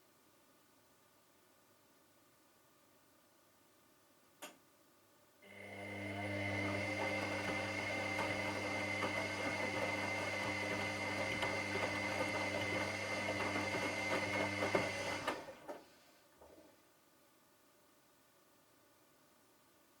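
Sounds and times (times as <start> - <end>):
washing machine motor hum and whine: 5.5 - 15.7.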